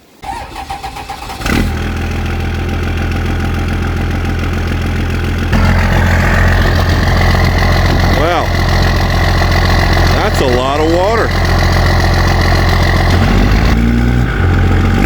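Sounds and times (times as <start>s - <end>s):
diesel engine starter cranking: 0.2s - 2.2s, 5.4s - 13.8s
diesel truck engine running: 0.2s - 15.0s.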